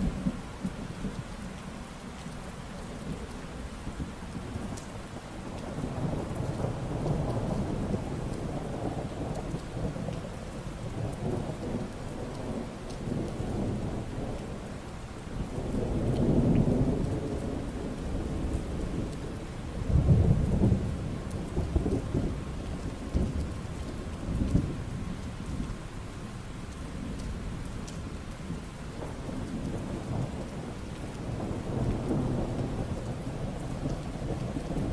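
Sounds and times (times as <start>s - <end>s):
steady rain falling: 0.0s - 34.9s
rolling thunder: 15.4s - 25.8s, 28.5s - 34.9s.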